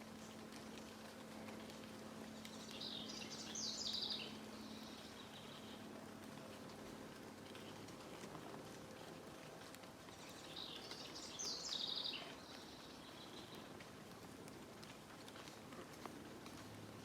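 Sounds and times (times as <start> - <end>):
faint outdoor background noise: 0.0 - 17.0
songbird chirping and trilling: 2.4 - 5.8, 10.1 - 13.6.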